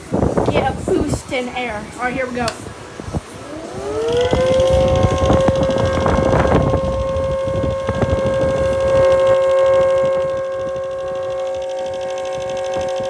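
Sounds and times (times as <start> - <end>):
rushing air noise: 0.0 - 13.0
siren wailing: 3.4 - 13.0.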